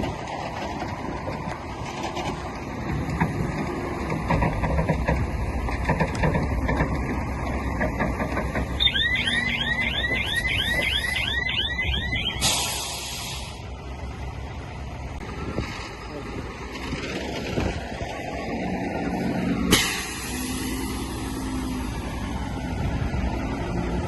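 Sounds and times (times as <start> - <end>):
heavy diesel machinery rumbling: 0.0 - 24.0
warbling alarm: 8.8 - 12.5.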